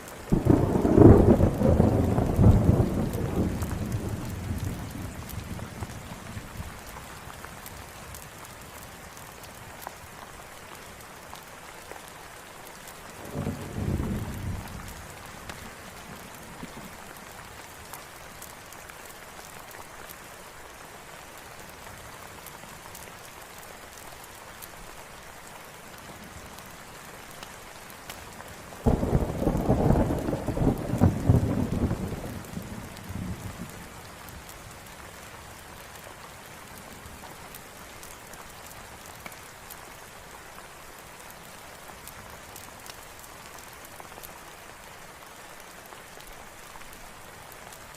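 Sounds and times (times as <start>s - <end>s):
steady rain falling: 0.0s - 47.9s
thunder rumbling: 0.3s - 6.6s, 28.8s - 33.9s.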